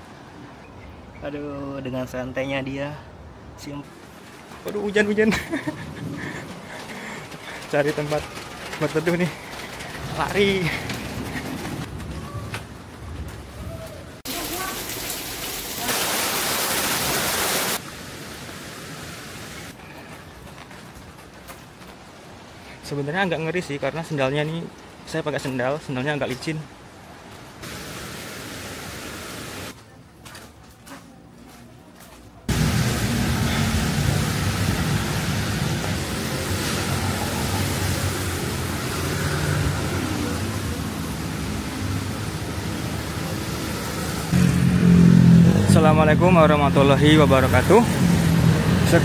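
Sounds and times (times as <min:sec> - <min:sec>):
heavy rain pouring: 0:04.8 - 0:12.1, 0:14.2 - 0:19.8, 0:27.6 - 0:29.8, 0:32.5 - 0:45.5.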